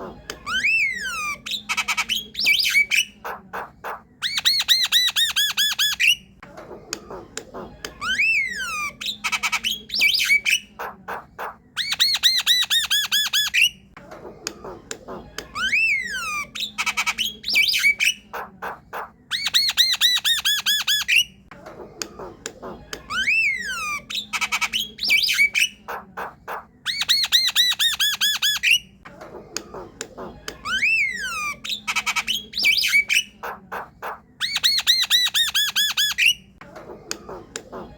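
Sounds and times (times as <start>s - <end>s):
bird chattering and whistling: 0.4s - 6.3s, 14.6s - 21.4s, 22.0s - 37.9s.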